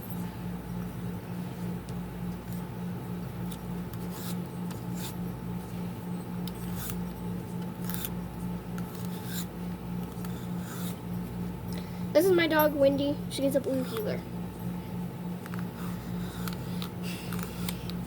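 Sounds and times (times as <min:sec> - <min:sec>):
low pulsing hum: 0:00.0 - 0:18.0
sharp scratching: 0:03.4 - 0:05.4, 0:06.5 - 0:11.2.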